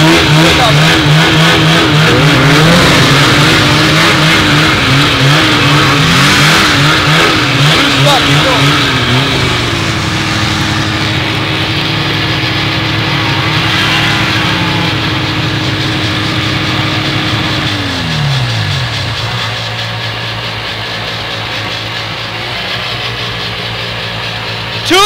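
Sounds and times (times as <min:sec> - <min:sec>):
snowmobile engine running: 0:00.0 - 0:25.0.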